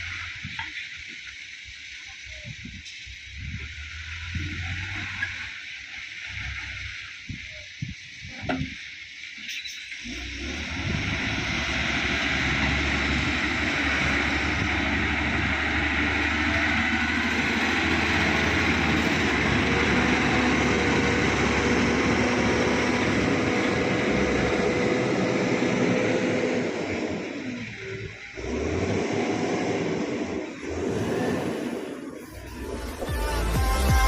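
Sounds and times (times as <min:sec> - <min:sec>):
truck engine humming: 0:00.0 - 0:34.0.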